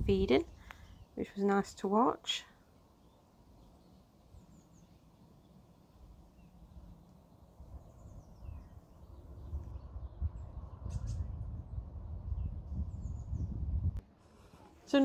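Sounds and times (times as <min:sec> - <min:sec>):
small birds chirping: 0:00.1 - 0:13.8
low rumble: 0:06.7 - 0:14.0.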